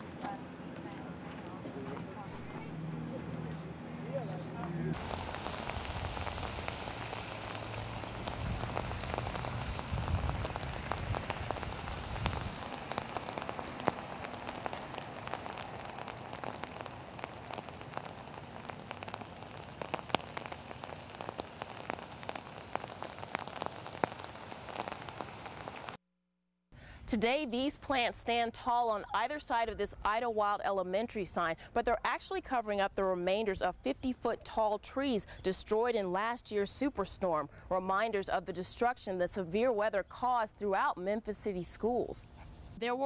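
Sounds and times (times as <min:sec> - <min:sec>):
low rumble: 0:04.5 - 0:21.1
raindrops ticking: 0:04.9 - 0:26.0
steady rain falling: 0:04.9 - 0:26.0.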